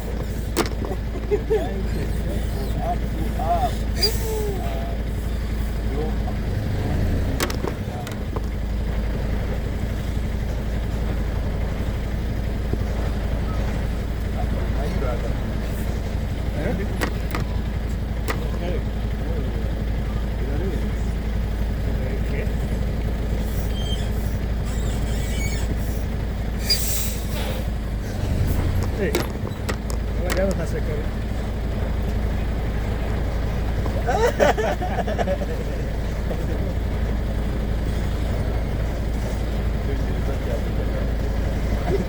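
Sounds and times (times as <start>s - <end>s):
truck engine running: 0.0s - 42.0s.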